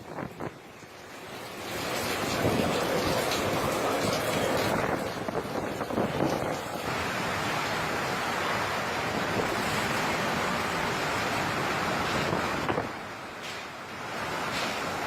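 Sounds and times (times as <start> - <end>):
wind and surf rushing: 1.9 - 13.3.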